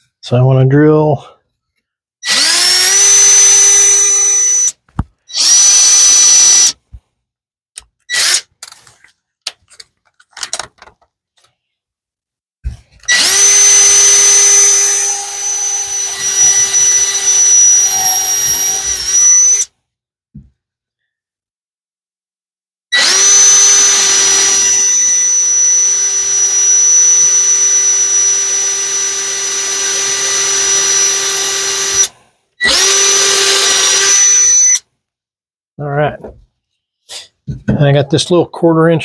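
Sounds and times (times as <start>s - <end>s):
electric drill boring wood: 2.2s - 6.8s, 8.1s - 8.4s, 13.0s - 19.7s, 23.0s - 34.8s
clicks and knocks of handling: 8.6s - 11.6s.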